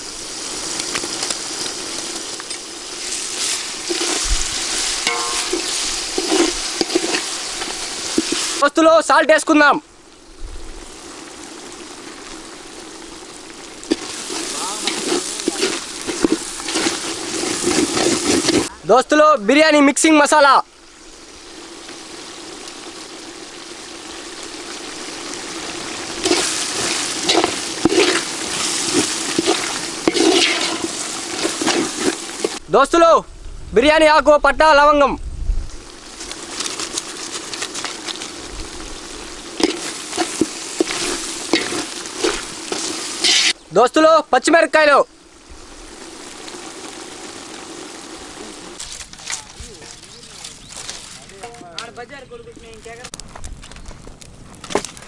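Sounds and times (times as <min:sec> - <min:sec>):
masala sizzling in a pot: 0:00.0 - 0:32.8, 0:35.6 - 0:54.1
metal ladle scraping a pot: 0:03.8 - 0:08.4, 0:26.2 - 0:32.6, 0:39.6 - 0:43.6.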